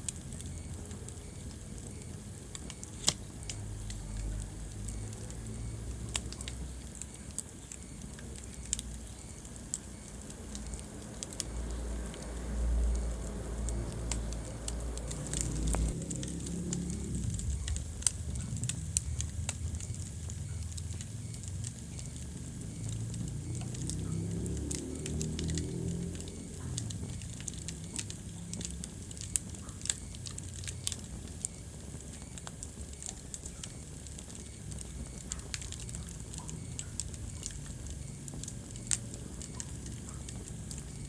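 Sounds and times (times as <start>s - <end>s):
fire pops: 0.0s - 41.0s
wood fire crackling: 0.0s - 41.0s
low rumble: 12.5s - 20.5s.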